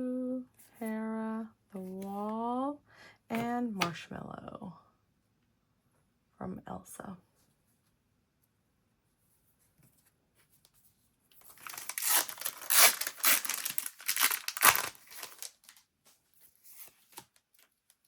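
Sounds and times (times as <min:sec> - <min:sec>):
foil wrapper tearing and crinkling: 0:11.4 - 0:15.8.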